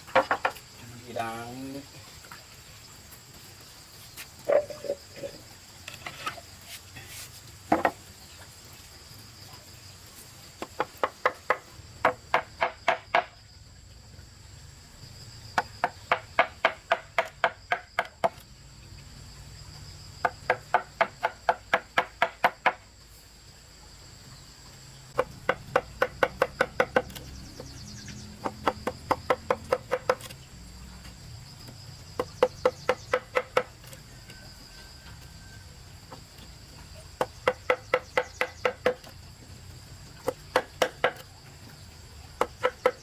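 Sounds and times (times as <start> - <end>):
hand tool striking wood: 0.1 - 0.6, 7.7 - 8.0, 10.6 - 13.4, 15.6 - 18.4, 20.2 - 22.8, 25.2 - 30.4, 31.6 - 34.0, 36.7 - 39.2, 40.2 - 41.3, 42.4 - 43.0
high insect buzz: 36.3 - 41.9.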